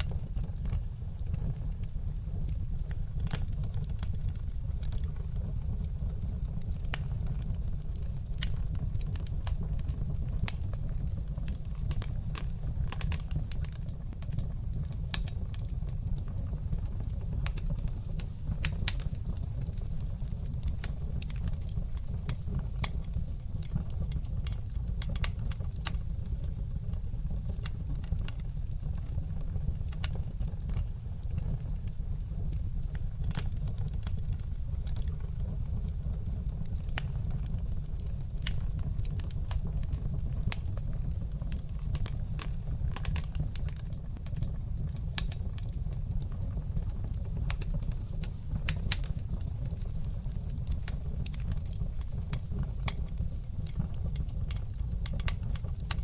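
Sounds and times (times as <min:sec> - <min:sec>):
fire crackling and popping: 0:00.0 - 0:56.0
low fire rumble: 0:00.0 - 0:56.0.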